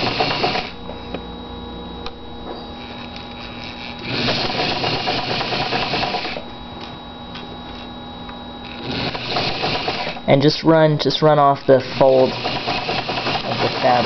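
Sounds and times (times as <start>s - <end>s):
sewing machine stitching: 0.0s - 0.7s, 4.0s - 6.4s, 8.7s - 10.2s, 12.1s - 14.0s.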